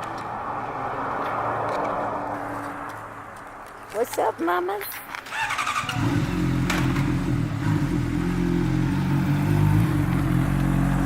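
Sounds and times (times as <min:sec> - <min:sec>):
motorcycle engine starting and idling: 0:05.2 - 0:11.0.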